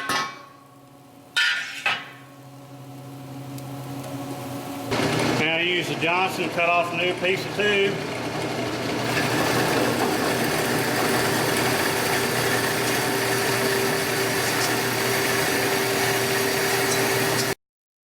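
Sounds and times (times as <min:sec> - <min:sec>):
band saw cutting steel tube: 0:08.9 - 0:17.6.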